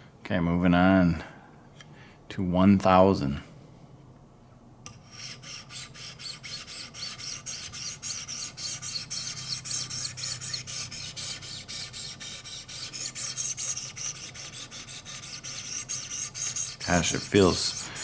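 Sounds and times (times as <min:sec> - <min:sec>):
sharpening stones rasping on knife: 0:04.9 - 0:18.0.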